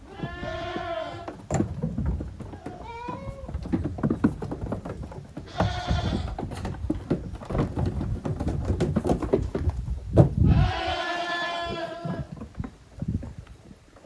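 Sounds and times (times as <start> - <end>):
young goats bleating: 0.0 - 1.4, 2.6 - 3.6, 5.5 - 6.4, 10.4 - 12.4
hooves clattering: 0.0 - 14.0.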